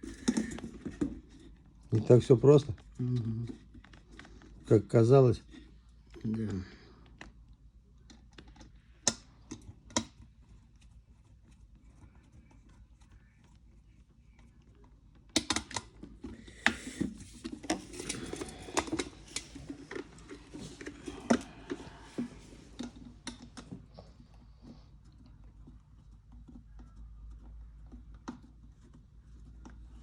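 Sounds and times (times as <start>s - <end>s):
parts rattling and scraping: 16.0s - 23.9s.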